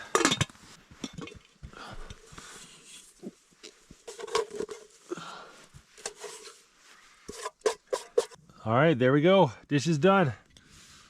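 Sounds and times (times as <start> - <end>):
dish knocks and clinks: 0.0 - 1.5
scratchy rubbing of dish: 7.2 - 8.4.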